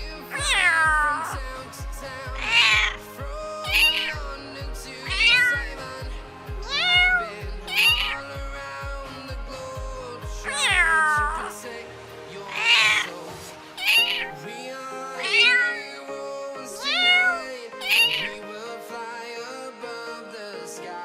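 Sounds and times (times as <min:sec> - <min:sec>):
background music with low beat: 0:00.0 - 0:15.1
cat meowing: 0:00.3 - 0:01.4, 0:02.4 - 0:03.0, 0:03.7 - 0:04.2, 0:05.0 - 0:05.7, 0:06.6 - 0:08.2, 0:10.4 - 0:11.5, 0:12.5 - 0:13.1, 0:13.8 - 0:14.3, 0:15.2 - 0:15.8, 0:16.8 - 0:18.4.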